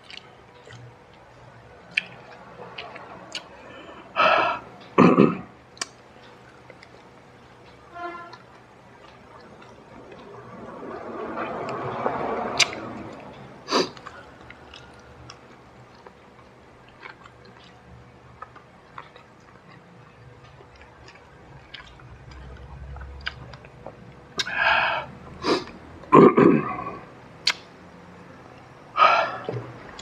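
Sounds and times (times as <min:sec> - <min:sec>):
man chewing crispy food: 0:00.0 - 0:05.0, 0:05.7 - 0:11.8, 0:12.6 - 0:24.7
lip smacks and clicks: 0:01.9 - 0:03.5, 0:27.4 - 0:27.7.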